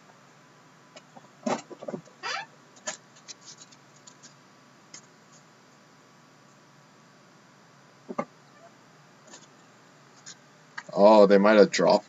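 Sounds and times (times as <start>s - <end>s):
cards scraping and rustling: 2.8s - 5.5s.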